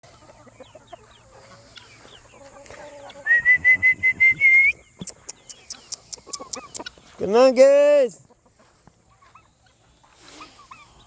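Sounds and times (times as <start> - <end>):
chickens clucking: 0.0 - 11.0
chicks peeping: 0.0 - 11.0
pulsing high whistle: 3.3 - 4.8.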